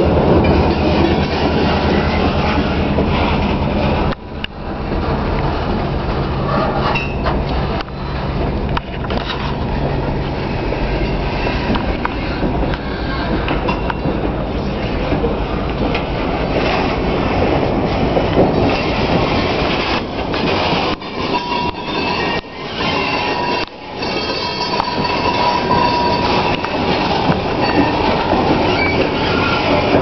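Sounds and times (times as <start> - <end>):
train wheels rumbling over rails: 0.0 - 30.0
thin wheel squeal: 21.1 - 26.6, 27.6 - 29.8.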